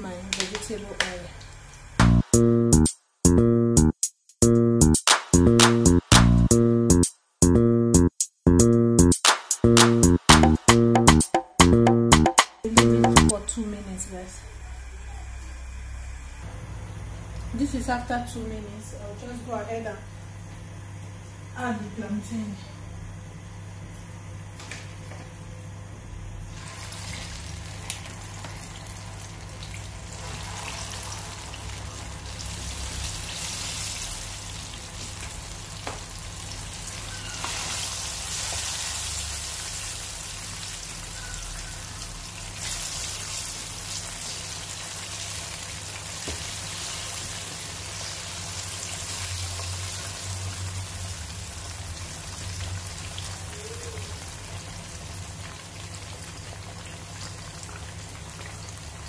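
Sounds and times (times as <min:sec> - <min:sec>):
plantain slices sizzling in oil: 0:26.5 - 0:59.0.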